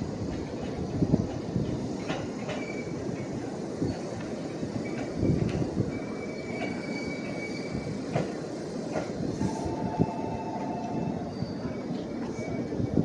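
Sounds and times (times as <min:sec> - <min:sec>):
train wheels rumbling on rail: 0:00.0 - 0:13.0
wheels squealing: 0:04.8 - 0:12.8.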